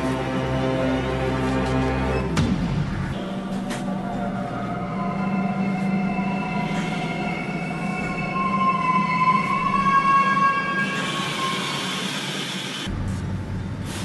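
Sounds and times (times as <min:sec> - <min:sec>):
metro train low hum: 0:00.0 - 0:02.4, 0:03.2 - 0:14.0
high whining tones: 0:03.2 - 0:12.9.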